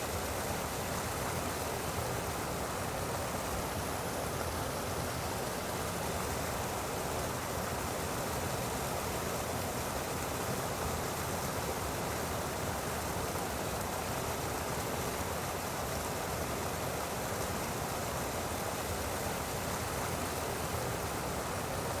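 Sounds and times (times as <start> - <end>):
water gushing: 0.0 - 22.0.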